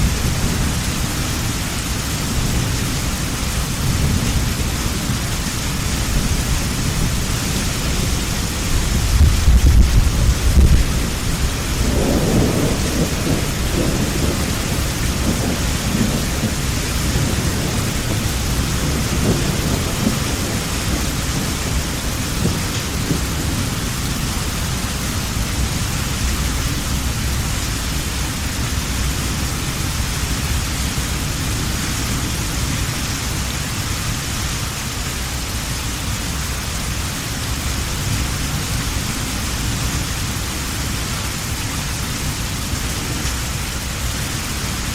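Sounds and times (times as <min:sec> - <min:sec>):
thunder rumble: 0:00.0 - 0:32.8
heavy rain: 0:00.0 - 0:44.9.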